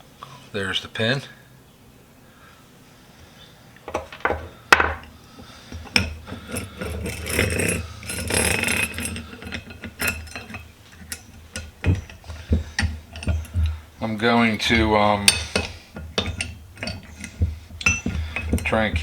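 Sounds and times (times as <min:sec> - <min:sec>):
metal parts clinking and knocking: 0:03.8 - 0:05.1, 0:05.8 - 0:19.0.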